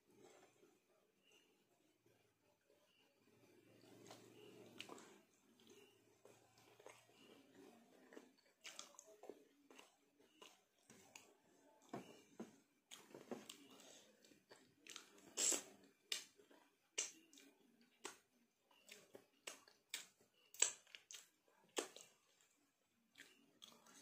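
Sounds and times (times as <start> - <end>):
person chewing: 3.8 - 24.0
lip smacks: 14.8 - 16.4, 17.0 - 18.2, 18.9 - 22.2.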